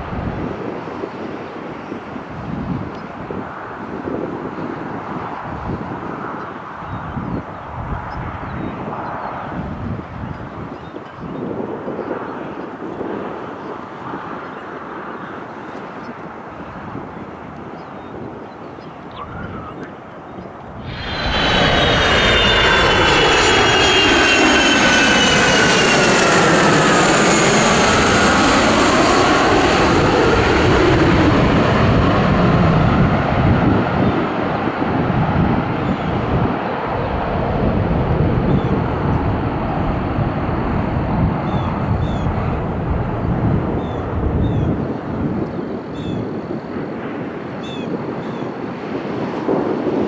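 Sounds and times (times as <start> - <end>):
jet airliner engine noise: 0.0 - 50.0
high engine whine: 20.7 - 33.5.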